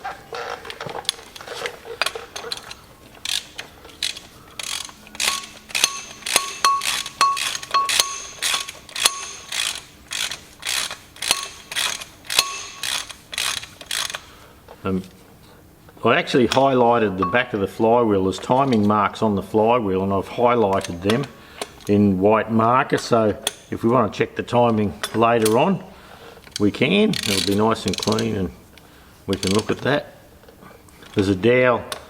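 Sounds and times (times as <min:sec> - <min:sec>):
socket ratchet clicking: 0:02.0 - 0:14.3.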